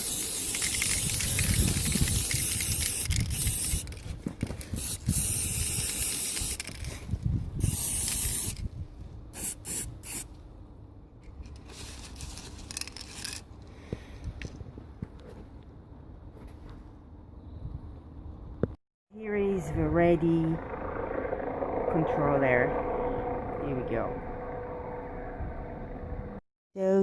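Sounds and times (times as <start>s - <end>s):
aerosol spray can hissing: 0.0s - 3.8s, 4.8s - 6.6s, 7.6s - 8.6s.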